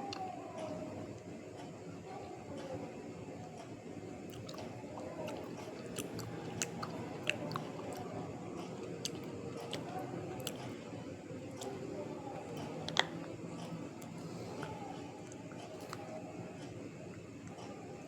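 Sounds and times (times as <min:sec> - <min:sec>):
person chewing crunchy food: 0:04.3 - 0:16.2.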